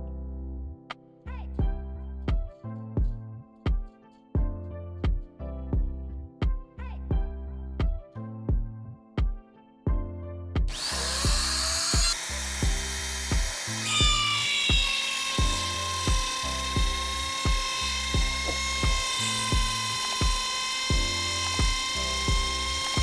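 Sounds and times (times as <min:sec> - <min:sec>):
background music with beat: 0:01.6 - 0:15.5
power tool whining: 0:10.7 - 0:23.0.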